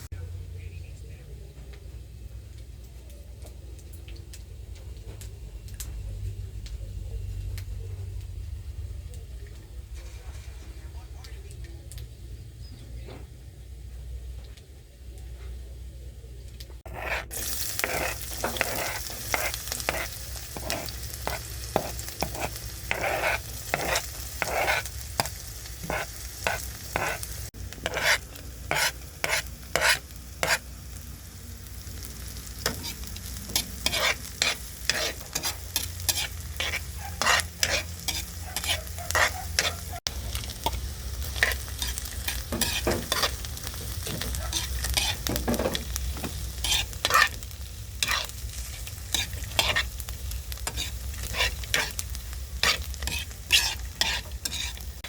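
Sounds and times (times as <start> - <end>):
food sizzling in a pan: 16.8 - 55.0
utensil scraping a pan: 16.9 - 30.7, 32.6 - 55.0.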